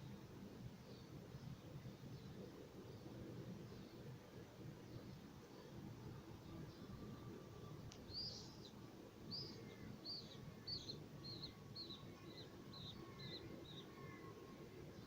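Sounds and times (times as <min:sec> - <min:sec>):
bird chirping: 0:06.5 - 0:14.4.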